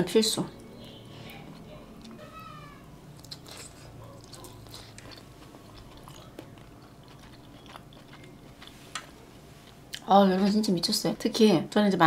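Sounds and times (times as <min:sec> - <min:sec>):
biting into dumpling: 0:03.2 - 0:10.0.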